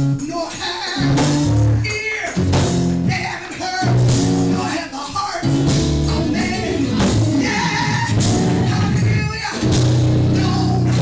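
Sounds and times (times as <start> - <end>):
organ chords: 0.0 - 11.0
people singing: 0.5 - 2.3, 6.1 - 9.4.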